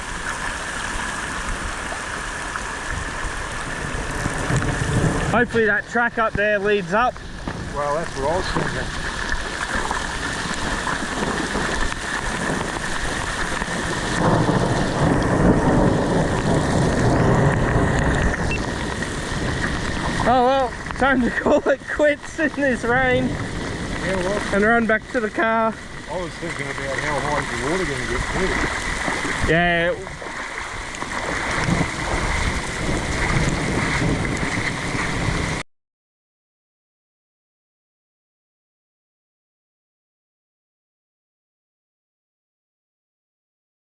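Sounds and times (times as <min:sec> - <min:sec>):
river rushing: 0:00.0 - 0:05.7, 0:07.2 - 0:35.6
rain falling steadily: 0:00.0 - 0:35.6
thunder rumbling: 0:00.0 - 0:35.6.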